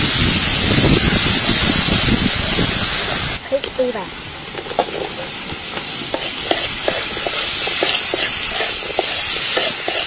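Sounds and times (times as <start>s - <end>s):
liver sizzling in hot oil: 0.0s - 3.4s, 4.4s - 10.0s
metal spatula scraping a wok: 6.0s - 10.0s.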